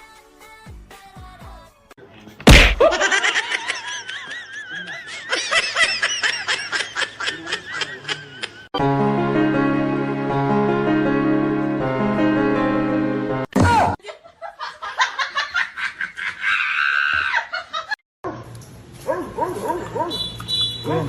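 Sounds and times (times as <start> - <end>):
sudden loud hit: 2.4 - 3.0
rapid wobbling laughter: 2.5 - 8.7
keyboard chords background music: 8.8 - 13.5.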